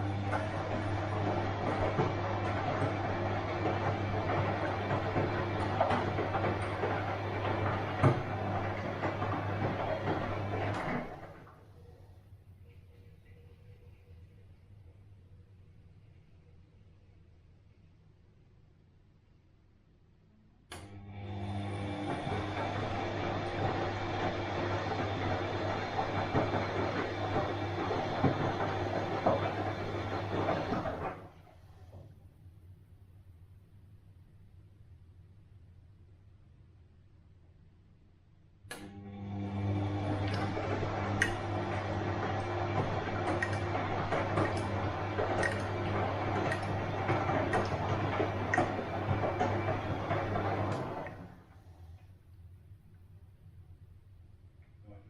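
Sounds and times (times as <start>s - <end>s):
water sloshing and laundry tumbling: 0.0s - 11.8s, 21.8s - 32.0s, 39.3s - 51.7s
washing machine running: 0.0s - 14.1s, 20.7s - 32.2s, 38.7s - 52.1s.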